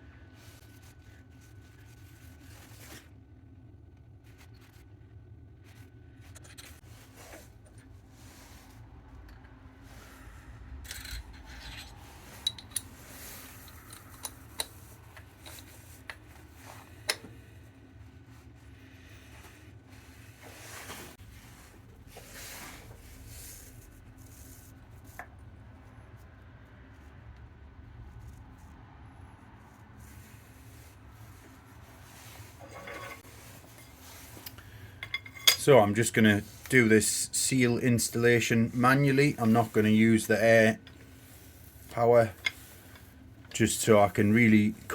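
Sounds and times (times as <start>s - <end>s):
steady low hum: 0.0s - 44.9s
metal parts rubbing and scraping: 10.8s - 17.3s, 31.3s - 36.8s.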